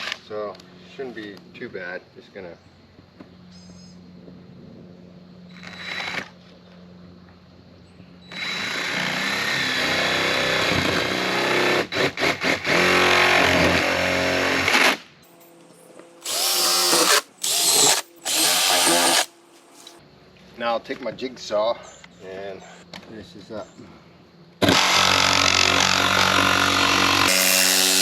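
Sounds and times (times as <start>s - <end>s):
power drill boring: 16.2s - 19.3s, 24.6s - 28.0s.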